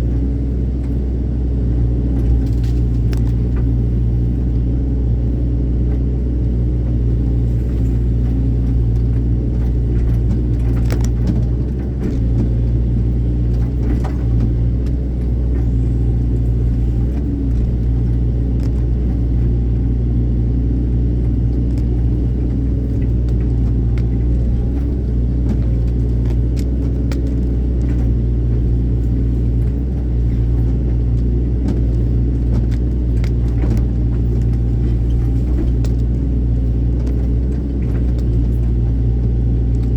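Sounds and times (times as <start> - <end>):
diesel engine running: 0.0 - 39.9
sharp clicks and knocks: 7.7 - 19.5, 21.1 - 39.9.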